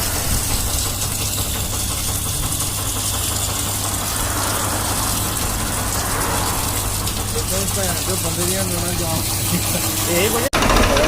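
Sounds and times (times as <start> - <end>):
engine idling: 0.0 - 11.0
even hiss: 2.3 - 10.4.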